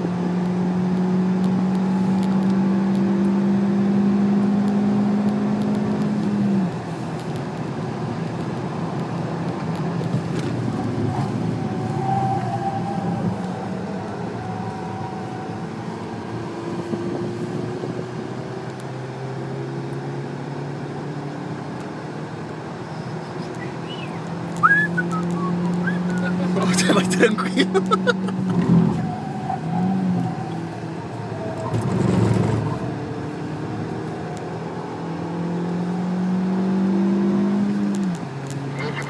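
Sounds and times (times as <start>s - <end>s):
car engine revving: 0.0s - 7.0s, 7.6s - 39.0s
road and tyre noise: 0.0s - 39.0s.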